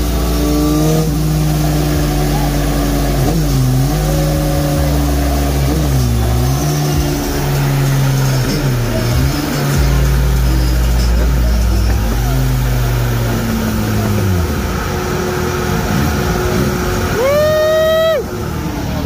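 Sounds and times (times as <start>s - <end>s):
motorcycle engine on dyno: 0.0s - 19.0s.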